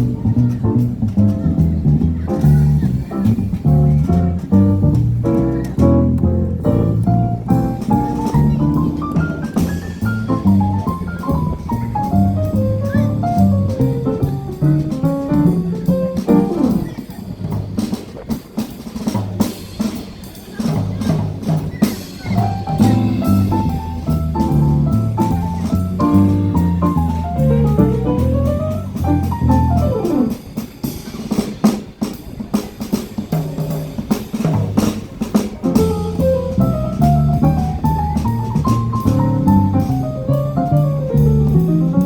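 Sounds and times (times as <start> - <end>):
jazz band playing: 0.0 - 42.0.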